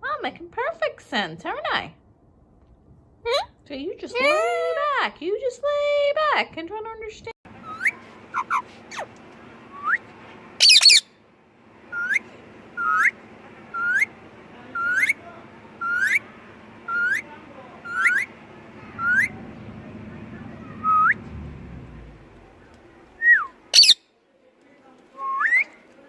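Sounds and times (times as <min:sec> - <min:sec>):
parakeet rising whistles: 0:07.6 - 0:09.1, 0:10.6 - 0:11.0, 0:11.9 - 0:12.2, 0:12.8 - 0:14.1, 0:15.8 - 0:16.2, 0:16.9 - 0:18.3, 0:19.0 - 0:19.4, 0:20.8 - 0:21.3, 0:23.2 - 0:24.0
parakeet squawk: 0:07.6 - 0:09.1, 0:10.6 - 0:11.1, 0:12.8 - 0:14.1, 0:15.8 - 0:16.3, 0:16.9 - 0:18.3, 0:19.0 - 0:19.4, 0:23.7 - 0:24.0.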